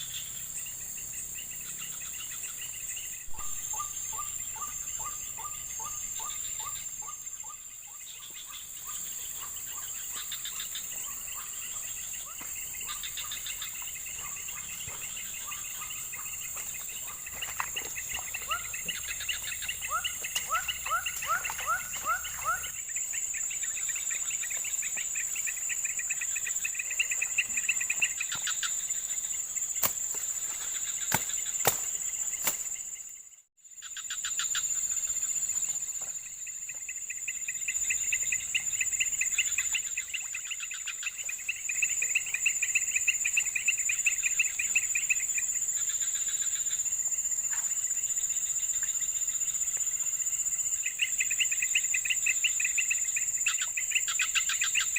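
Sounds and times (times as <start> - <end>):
insects droning: 0.0 - 54.9
chirping calls: 1.6 - 22.8.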